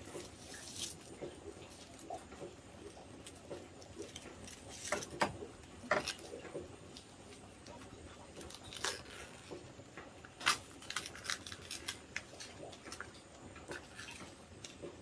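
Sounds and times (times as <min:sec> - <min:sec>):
rustling: 0:00.0 - 0:09.7.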